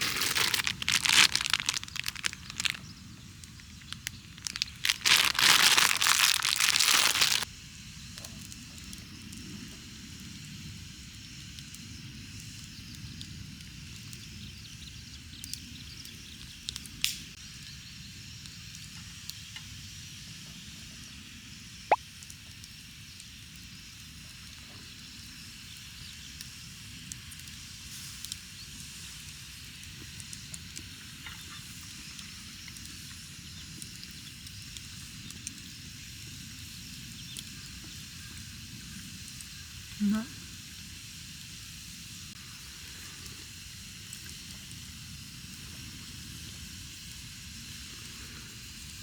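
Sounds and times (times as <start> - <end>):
fire popping: 0.0 - 7.5, 15.5 - 17.3
campfire crackling and hissing: 0.0 - 49.0.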